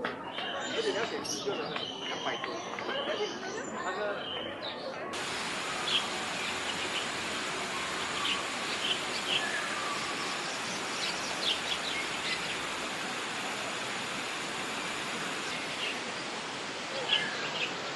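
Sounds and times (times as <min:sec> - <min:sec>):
birds chirping: 0:00.3 - 0:17.9
steady rushing noise: 0:05.1 - 0:17.9.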